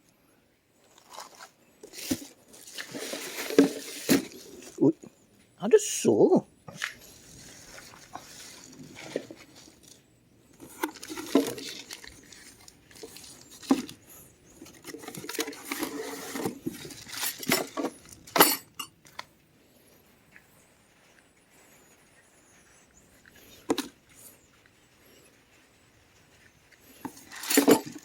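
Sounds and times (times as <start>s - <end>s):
rustling: 0.0s - 5.6s, 6.7s - 28.0s
hard objects clinking and knocking: 14.6s - 19.0s, 27.0s - 28.0s.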